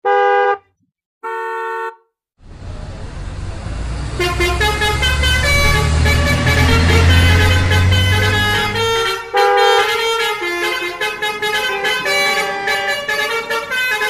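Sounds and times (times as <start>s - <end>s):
horn honks: 1.2s - 2.1s, 2.7s - 14.0s
low engine-like rumble: 2.4s - 9.1s.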